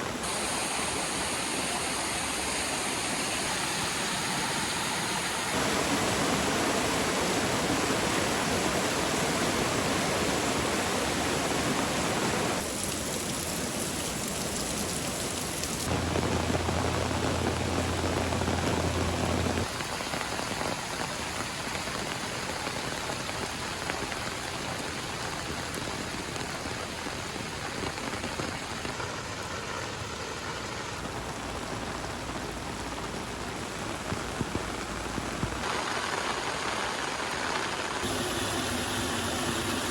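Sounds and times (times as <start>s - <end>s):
heavy running floodwater: 0.0s - 39.9s
low hum: 15.9s - 19.6s.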